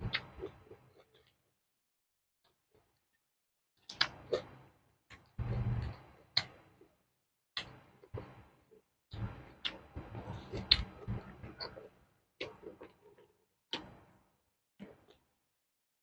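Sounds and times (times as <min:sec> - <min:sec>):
person chewing crunchy food: 0:09.1 - 0:14.0.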